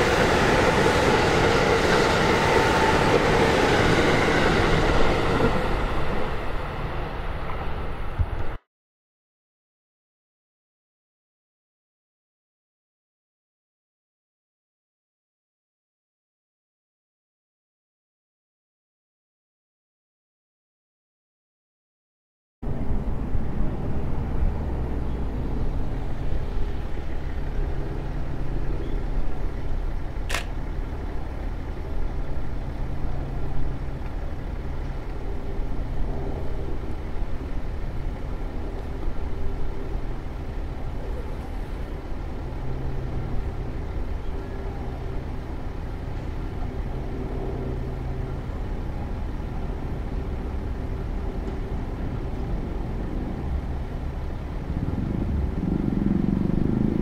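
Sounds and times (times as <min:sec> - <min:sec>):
train rumble: 0:00.0 - 0:08.6, 0:22.6 - 0:57.0
sharp click: 0:30.2 - 0:30.6.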